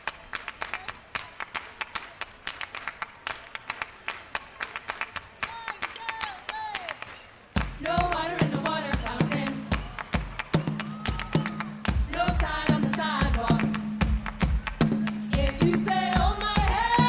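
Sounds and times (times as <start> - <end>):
hands clapping in rhythm: 0.0 - 17.0
falling vocal whoops: 9.8 - 11.9.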